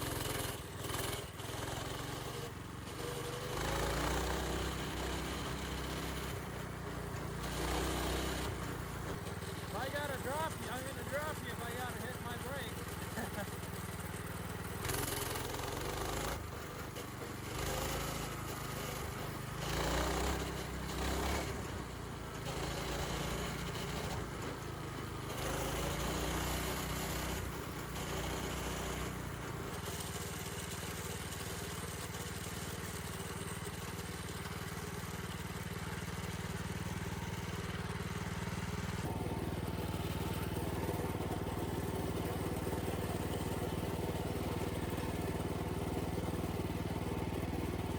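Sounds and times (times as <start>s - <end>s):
minibike engine revving: 0.0s - 47.9s.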